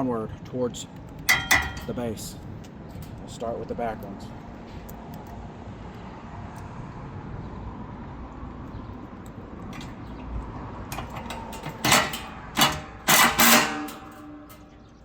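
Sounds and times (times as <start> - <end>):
metal washers knocking: 1.2 - 2.2, 10.9 - 14.8.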